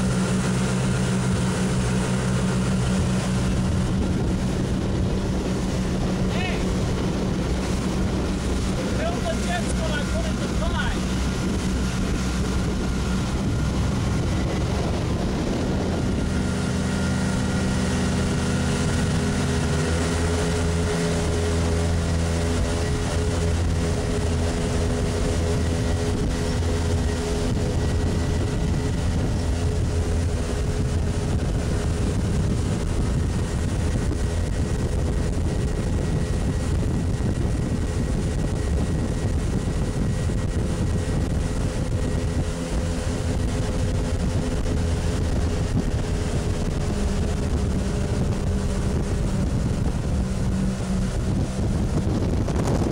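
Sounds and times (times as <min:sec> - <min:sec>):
boat engine running: 0:00.0 - 0:52.9
wind and water rushing: 0:00.0 - 0:52.9.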